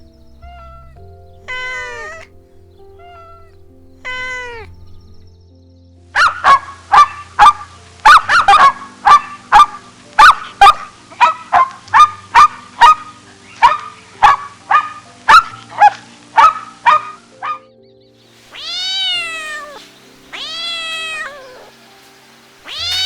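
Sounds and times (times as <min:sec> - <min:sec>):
short sharp animal calls: 0:00.4 - 0:05.0, 0:18.5 - 0:21.7.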